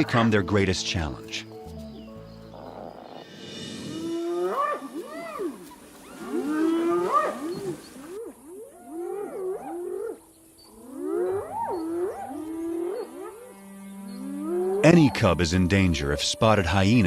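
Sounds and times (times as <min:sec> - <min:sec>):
wild animals yelping: 0:02.5 - 0:10.2, 0:10.8 - 0:13.5.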